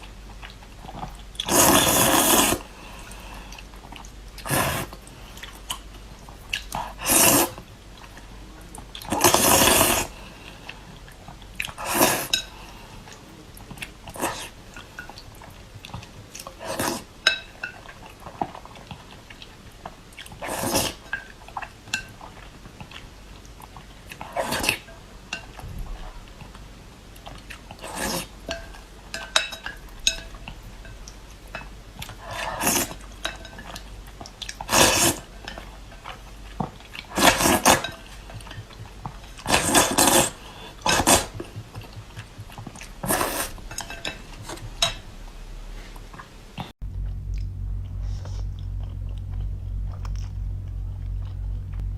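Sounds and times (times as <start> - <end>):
person eating noodles: 1.4 - 3.6, 6.5 - 7.6, 8.9 - 10.5, 27.3 - 28.4, 32.0 - 44.7
utensils clinking against bowl: 28.4 - 31.7, 32.3 - 33.9, 37.2 - 45.0.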